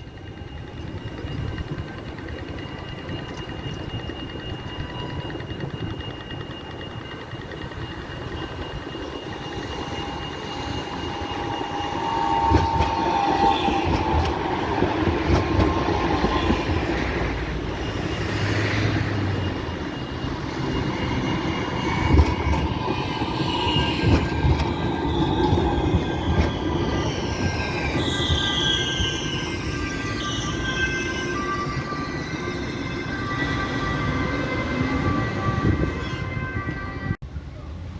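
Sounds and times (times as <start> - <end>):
tram running on rails: 0.0 - 37.9
tram wheels knocking: 0.7 - 36.0
high tones sliding in pitch: 8.8 - 37.0.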